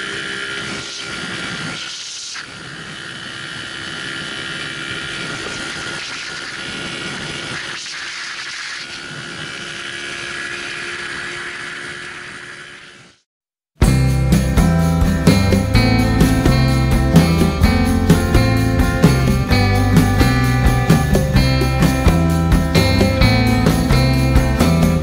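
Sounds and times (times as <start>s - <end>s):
motorcycle engine running: 2.5s - 7.7s, 13.8s - 25.0s.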